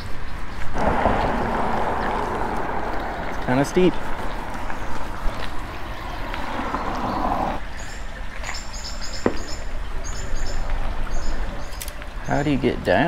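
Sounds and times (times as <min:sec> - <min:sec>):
rushing noise: 0:00.7 - 0:07.6
small birds chirping: 0:02.1 - 0:12.8.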